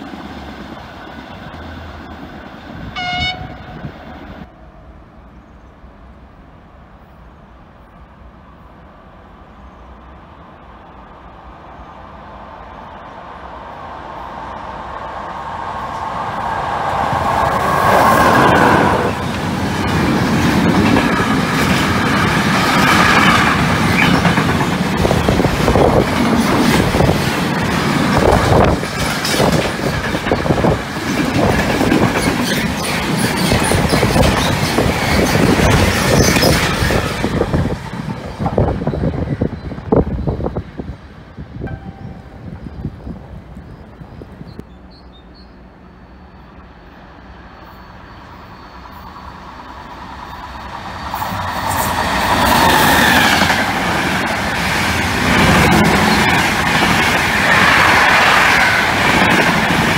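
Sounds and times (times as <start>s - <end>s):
freight train rumble: 0.0s - 59.9s
locomotive whine: 0.0s - 59.9s
wheels clattering over rail joints: 18.3s - 38.3s.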